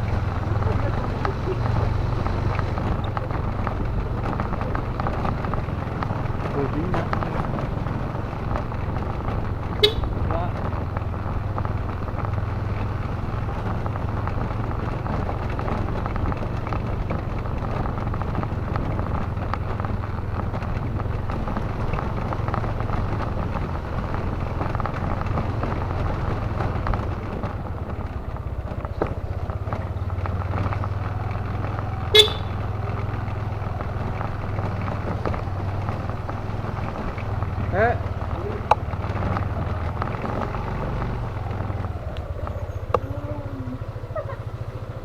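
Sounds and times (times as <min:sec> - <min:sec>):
motorcycle engine hum: 0:00.0 - 0:45.0
road and wind noise: 0:00.0 - 0:45.0
horn toot: 0:09.8 - 0:10.3, 0:32.1 - 0:32.7.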